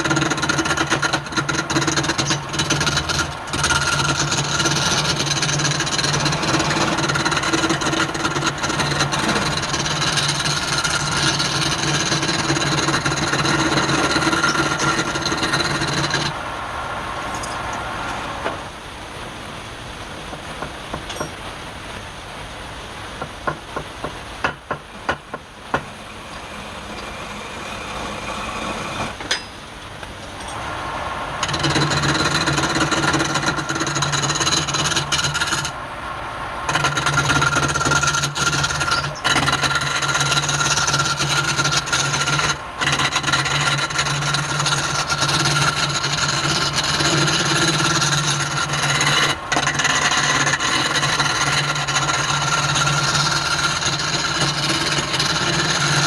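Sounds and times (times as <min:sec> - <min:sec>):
tool scraping spinning wood: 0:00.0 - 0:16.4, 0:23.4 - 0:29.5, 0:31.3 - 0:35.8, 0:36.6 - 0:56.0
wood lathe motor hum: 0:00.0 - 0:16.4, 0:25.8 - 0:29.2, 0:30.8 - 0:35.8, 0:36.7 - 0:56.0
sharp knocks: 0:23.2 - 0:25.9.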